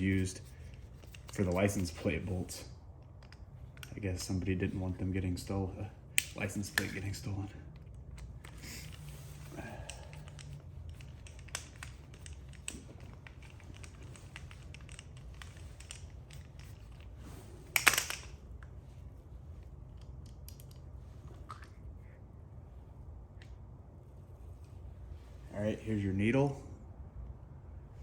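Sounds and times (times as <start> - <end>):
steady low hum: 0.0 - 28.0
metal parts clicking and tapping: 0.1 - 2.0, 3.0 - 4.3, 7.7 - 18.7, 19.9 - 20.9
metal parts clattering: 8.2 - 18.4.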